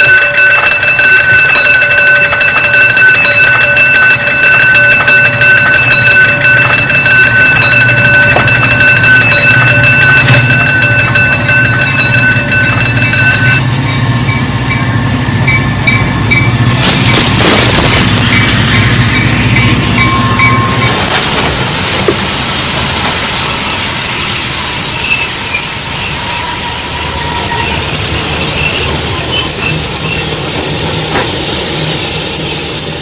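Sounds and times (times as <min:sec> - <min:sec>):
train rumble with rhythmic clatter: 0:00.0 - 0:33.0.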